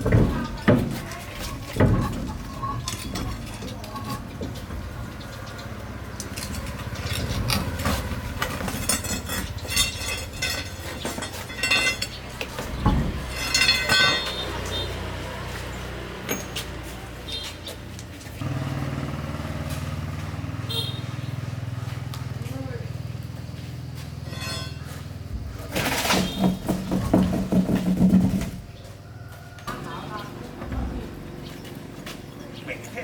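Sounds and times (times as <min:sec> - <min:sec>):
metal tools clinking and rattling: 0:00.0 - 0:05.1, 0:06.1 - 0:15.0, 0:16.3 - 0:16.7, 0:24.2 - 0:26.5.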